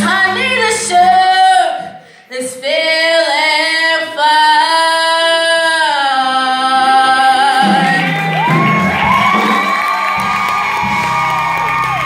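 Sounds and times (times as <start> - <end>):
person singing with vibrato: 0.0 - 8.9
music: 0.0 - 12.0.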